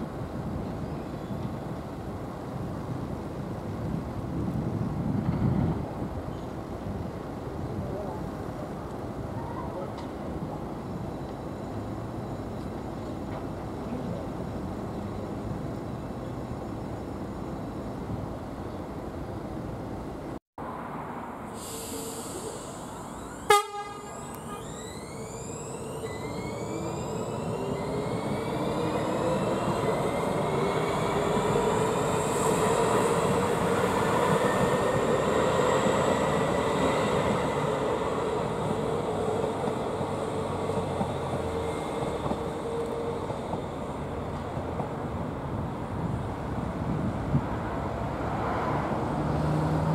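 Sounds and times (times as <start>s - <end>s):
train rumble: 21.2s - 49.9s
electric train motor whine: 21.9s - 44.6s.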